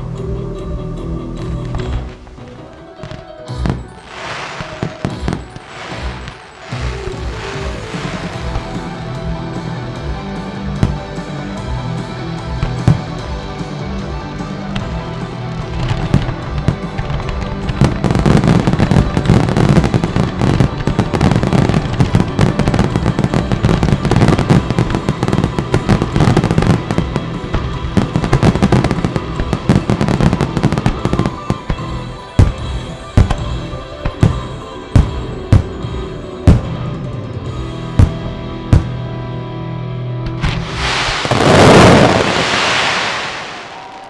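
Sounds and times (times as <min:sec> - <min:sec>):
music: 0:00.0 - 0:44.0
fireworks crackling bangs: 0:01.8 - 0:09.2, 0:10.7 - 0:11.3, 0:12.6 - 0:13.5, 0:14.8 - 0:35.9, 0:38.0 - 0:39.0, 0:40.3 - 0:44.0
heavy firework booms: 0:03.6 - 0:09.0, 0:10.8 - 0:11.2, 0:12.6 - 0:13.4, 0:38.0 - 0:39.0, 0:40.4 - 0:44.0.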